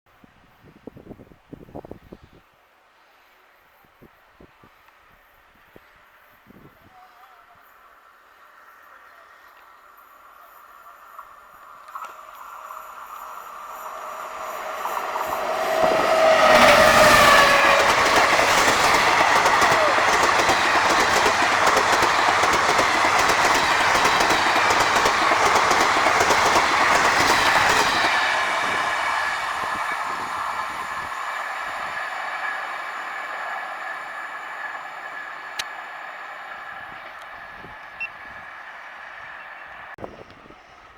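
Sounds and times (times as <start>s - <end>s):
train whine passing: 7.9s - 40.9s
wheels clacking over rail joints: 11.8s - 40.0s.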